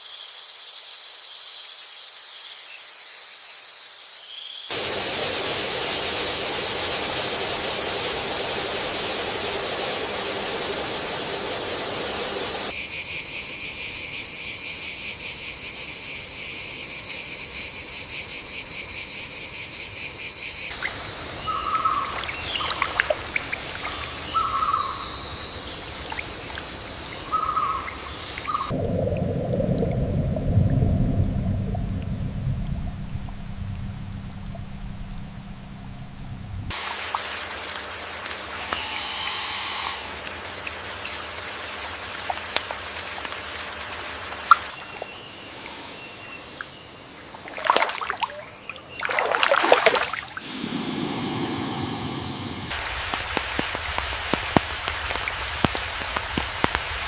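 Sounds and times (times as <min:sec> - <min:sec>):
insect buzz: 0:00.0 - 0:04.8, 0:11.1 - 0:28.7, 0:36.7 - 0:52.8
insect chorus: 0:00.0 - 0:28.8, 0:36.7 - 0:57.0
steady hiss: 0:04.7 - 0:12.8, 0:20.7 - 0:28.7, 0:36.7 - 0:41.6, 0:50.3 - 0:57.0
frog or bird calls: 0:20.5 - 0:28.7
low rushing noise: 0:50.4 - 0:53.1.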